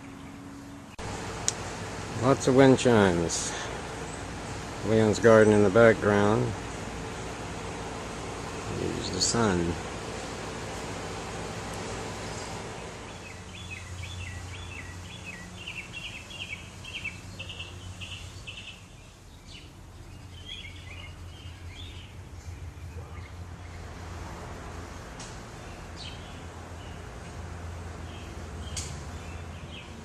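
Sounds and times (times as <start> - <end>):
steady low hum: 0.0 - 30.0
songbird chirping: 11.7 - 23.9, 25.5 - 30.0.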